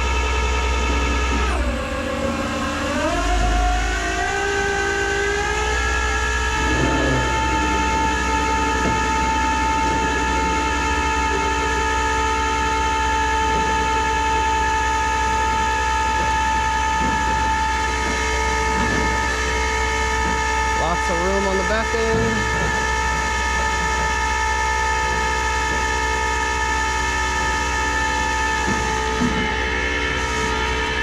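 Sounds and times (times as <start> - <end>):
truck hydraulics whining: 1.4 - 10.3.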